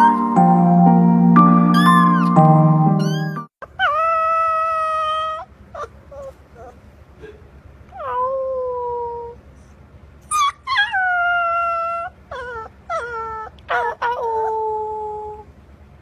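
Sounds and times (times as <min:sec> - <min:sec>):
dog yelping: 0:03.0 - 0:06.8, 0:07.9 - 0:09.4, 0:10.3 - 0:15.4
dog howling: 0:10.7 - 0:15.4.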